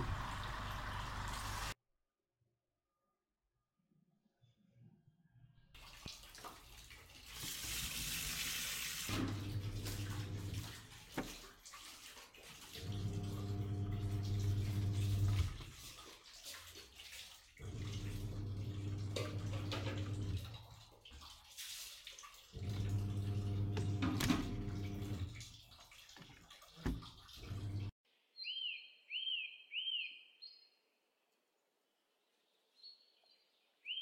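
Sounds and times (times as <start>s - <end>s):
washing machine motor humming: 0.0s - 1.8s, 9.1s - 10.9s, 12.8s - 15.7s, 17.6s - 20.5s, 22.6s - 25.4s, 26.8s - 27.9s
water churning in washing machine: 0.0s - 1.8s, 5.8s - 28.0s
water rushing: 0.0s - 1.8s, 7.3s - 11.6s, 12.6s - 16.0s, 17.6s - 20.5s, 22.6s - 27.9s.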